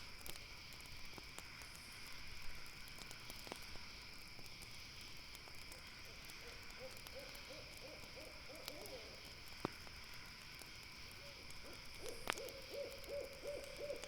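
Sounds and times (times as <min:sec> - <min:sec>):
campfire crackling and popping: 0:00.0 - 0:14.0
owl hooting: 0:06.4 - 0:09.2, 0:11.2 - 0:14.0.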